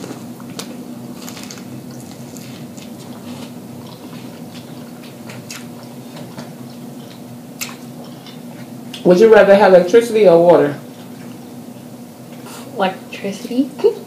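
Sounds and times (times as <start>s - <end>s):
biting and chewing corn: 0.0s - 8.7s.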